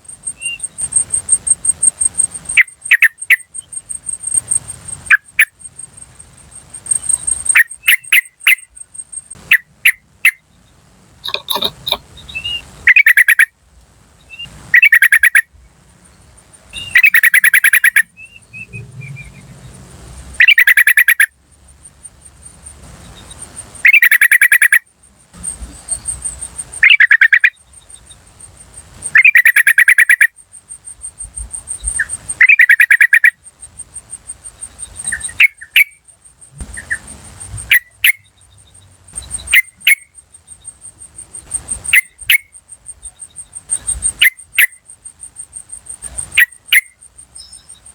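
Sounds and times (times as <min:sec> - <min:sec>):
insect trill: 0:00.0 - 0:47.9
bird chattering calls: 0:11.2 - 0:13.5, 0:14.4 - 0:15.5, 0:16.8 - 0:18.2, 0:20.4 - 0:21.3, 0:23.8 - 0:24.8, 0:25.4 - 0:27.7, 0:29.0 - 0:30.4, 0:31.2 - 0:33.4, 0:34.5 - 0:36.0, 0:36.7 - 0:38.3, 0:41.4 - 0:47.9.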